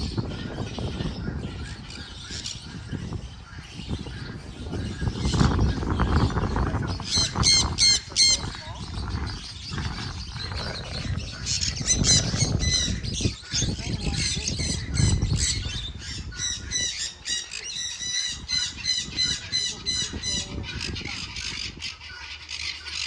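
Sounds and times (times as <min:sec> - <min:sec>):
low rumbling noise: 0:00.0 - 0:17.2
parrots squawking: 0:00.0 - 0:23.0.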